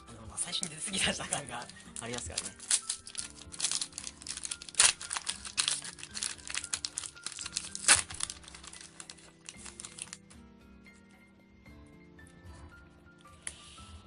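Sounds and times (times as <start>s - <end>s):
background music: 0.0s - 14.0s
plastic wrapper crinkling and tearing: 0.6s - 10.3s.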